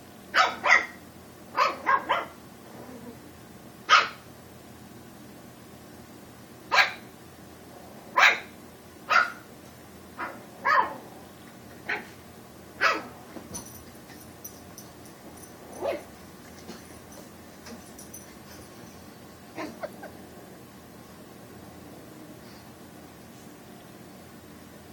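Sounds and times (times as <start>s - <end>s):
puppy barking: 0.3s - 1.0s, 1.6s - 2.4s, 3.9s - 4.2s, 6.7s - 7.0s, 8.2s - 8.5s, 9.1s - 9.5s, 10.2s - 11.0s, 11.9s - 12.1s, 12.8s - 13.2s, 15.7s - 16.1s, 19.5s - 20.3s.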